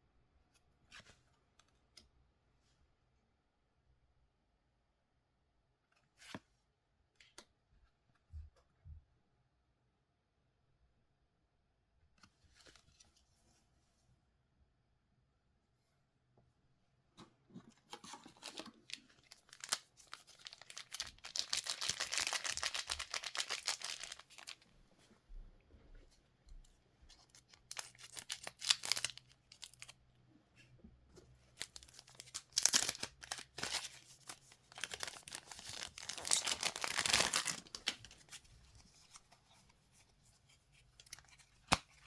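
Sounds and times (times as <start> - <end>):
plastic wrapping torn and crinkled: 18.3 - 24.6, 27.5 - 30.0, 31.6 - 38.4.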